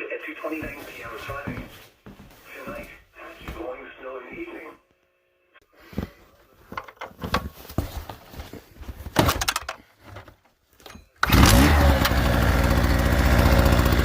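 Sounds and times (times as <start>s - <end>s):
handling knocks and rattles: 6.0s - 11.2s
generator engine running: 11.2s - 14.0s.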